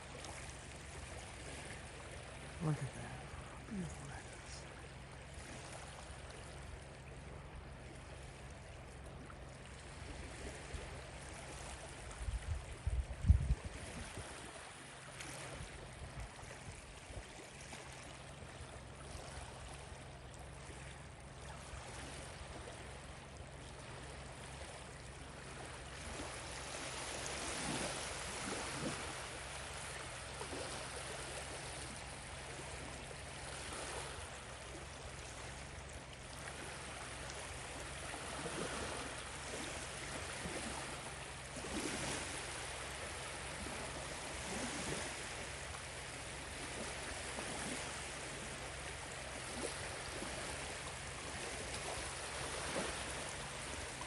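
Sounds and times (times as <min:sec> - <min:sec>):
waves washing on shore: 0:00.0 - 0:54.0.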